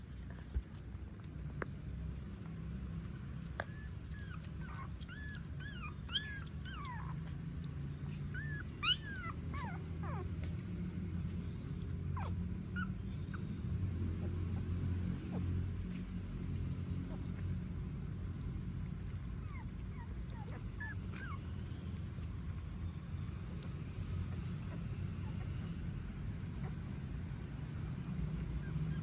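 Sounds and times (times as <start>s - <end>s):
low steady hum: 0.0s - 29.0s
puppies whimpering and squeaking: 3.0s - 29.0s.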